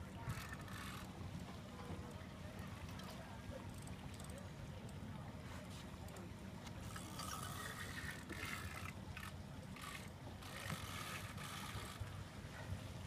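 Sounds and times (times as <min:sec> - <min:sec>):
fishing reel ratcheting buzz: 0:00.3 - 0:01.1, 0:06.9 - 0:12.0.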